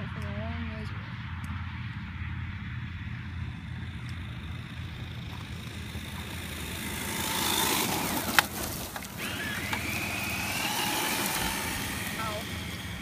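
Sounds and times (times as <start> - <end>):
rc car motor whining: 3.2 - 13.0.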